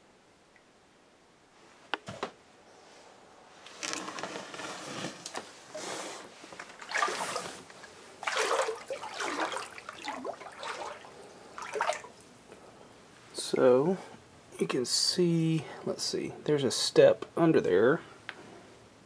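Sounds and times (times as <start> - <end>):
person wading through water: 6.8 - 12.3.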